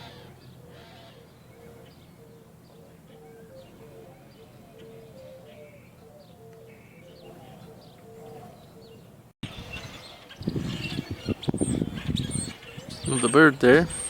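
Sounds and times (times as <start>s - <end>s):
bird low repeating call: 0.0s - 9.2s
birds chirping: 0.0s - 14.0s.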